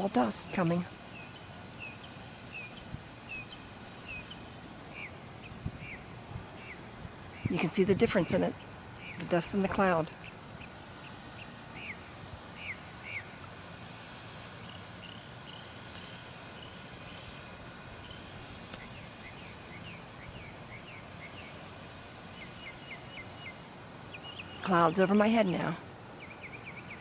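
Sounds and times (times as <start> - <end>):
birds chirping: 0.0 - 27.0
steady background hiss: 0.0 - 27.0.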